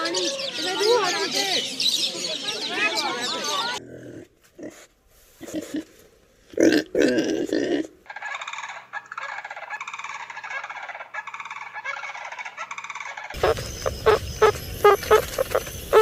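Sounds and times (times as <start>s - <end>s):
birds chattering: 0.0s - 3.8s, 8.2s - 16.0s.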